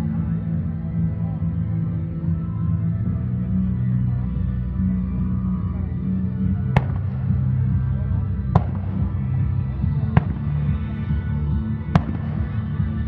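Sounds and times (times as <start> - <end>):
music with deep bass: 0.0 - 13.0
fireworks bangs: 6.8 - 7.4.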